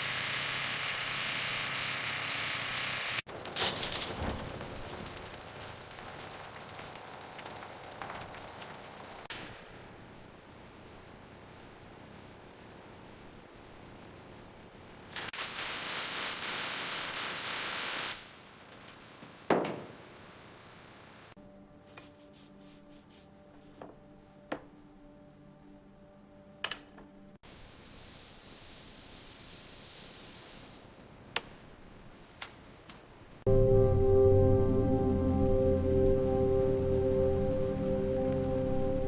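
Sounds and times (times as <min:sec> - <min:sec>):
hissing bursts of spray: 0:00.0 - 0:04.3, 0:15.4 - 0:18.5, 0:27.4 - 0:31.0.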